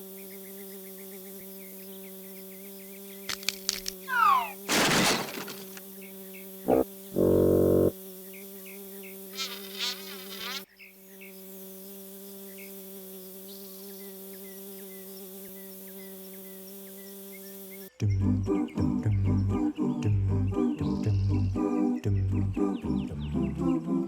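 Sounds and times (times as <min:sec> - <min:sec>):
bee swarm buzzing: 0:00.0 - 0:17.9
small high chirps: 0:03.3 - 0:04.7.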